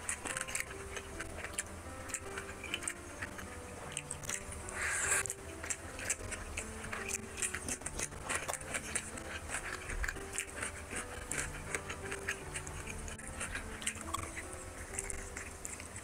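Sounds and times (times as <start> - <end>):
chewing and lip-smacking: 0.0 - 16.0
wet mouth clicks: 0.0 - 16.0.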